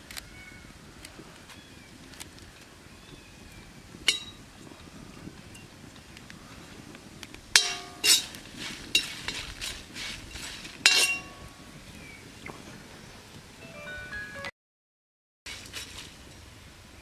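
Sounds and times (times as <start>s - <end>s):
metal utensils clinking: 4.1s - 4.4s, 7.5s - 9.7s, 10.3s - 11.6s
metal scraping: 7.5s - 11.5s.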